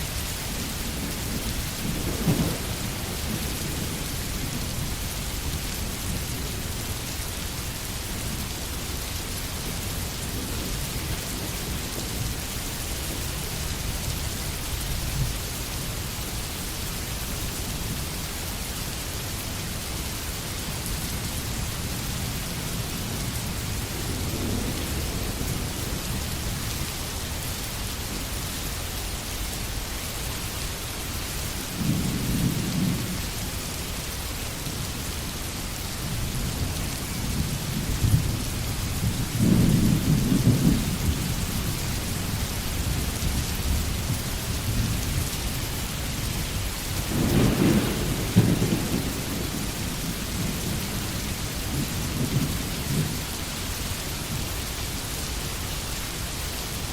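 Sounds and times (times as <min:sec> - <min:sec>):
heavy rain on foliage: 0:00.0 - 0:56.9
thunder rumbling: 0:00.1 - 0:06.6, 0:36.1 - 0:45.6, 0:46.3 - 0:53.3.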